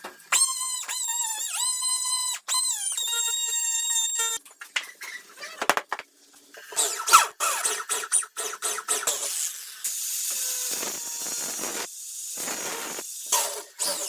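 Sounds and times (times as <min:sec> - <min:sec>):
clicks scrapes and squeaks: 0:00.3 - 0:05.7
steady air hiss: 0:09.8 - 0:13.3.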